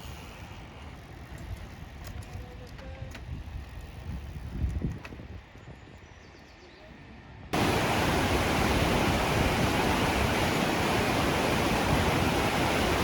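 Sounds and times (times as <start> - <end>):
whitewater rapids rushing: 7.6 - 13.0.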